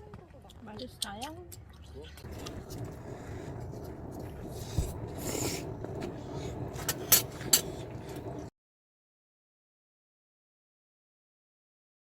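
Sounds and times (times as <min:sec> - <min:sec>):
steady background noise: 0:00.0 - 0:08.5.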